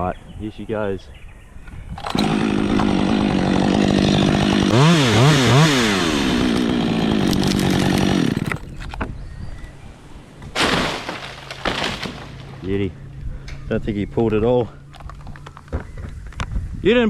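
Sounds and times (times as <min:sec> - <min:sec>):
chainsaw cutting wood: 0:02.0 - 0:08.9.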